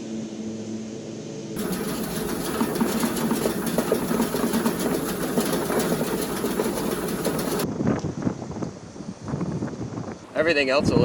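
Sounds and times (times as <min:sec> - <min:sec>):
machine rapid mechanical clatter: 0:01.6 - 0:07.6.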